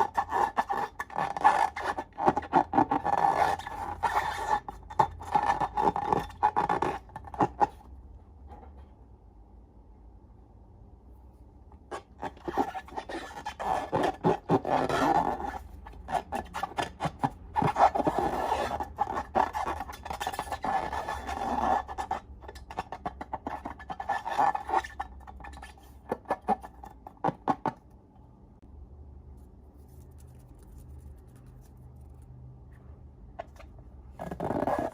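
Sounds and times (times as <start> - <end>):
slime being stirred: 0.0 - 7.9, 11.8 - 27.6, 29.4 - 32.3.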